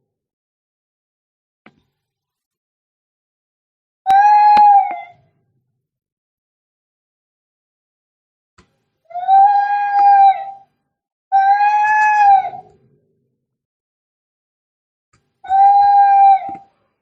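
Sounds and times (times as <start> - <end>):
cat yowling: 4.1 - 5.2, 9.1 - 10.6, 11.3 - 12.8, 15.5 - 16.7.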